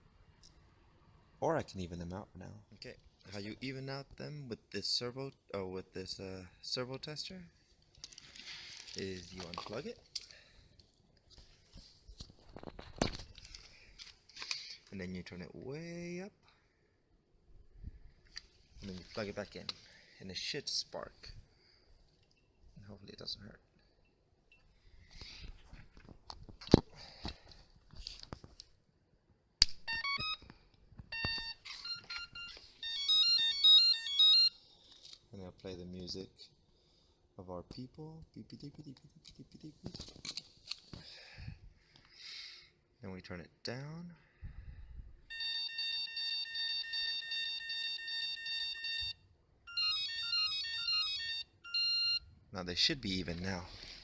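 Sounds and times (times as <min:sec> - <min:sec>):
motor beep pulsing: 0:29.9 - 0:30.4, 0:49.7 - 0:52.2
short electronic beeps: 0:29.9 - 0:30.4, 0:31.1 - 0:34.5, 0:45.3 - 0:52.2
stepped electronic tones: 0:29.9 - 0:30.4.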